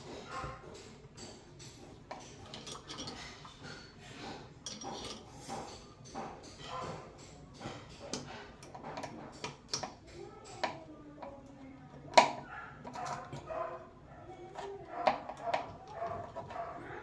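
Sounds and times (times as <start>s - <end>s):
metal and plastic parts clinking: 1.2s - 3.8s, 4.6s - 10.8s.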